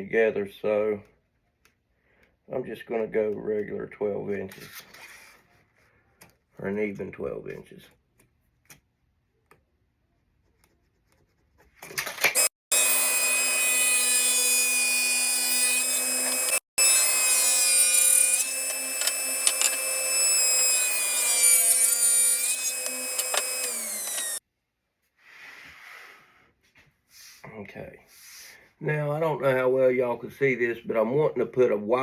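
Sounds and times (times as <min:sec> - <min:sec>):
electric saw cutting wood: 0:12.3 - 0:24.4.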